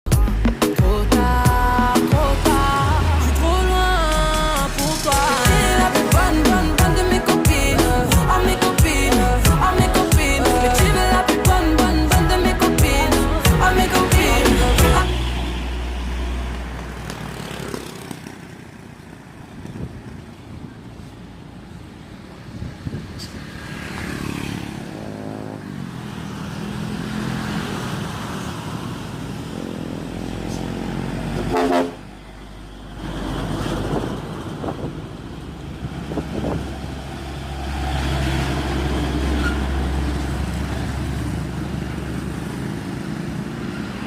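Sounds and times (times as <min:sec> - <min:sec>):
diesel trucks driving past: 0:00.1 - 0:44.0
truck horn: 0:13.6 - 0:15.6, 0:31.3 - 0:32.2.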